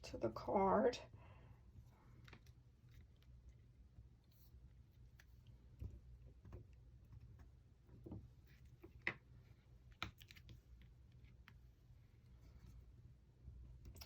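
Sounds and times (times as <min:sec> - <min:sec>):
faint taps and clicks of craft items: 0:05.0 - 0:11.6.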